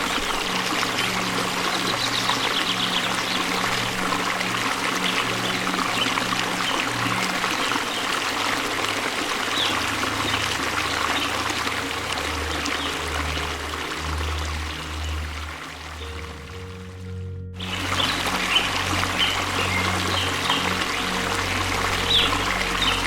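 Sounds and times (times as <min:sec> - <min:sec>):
waterfall splashing and rushing: 0:00.0 - 0:23.0.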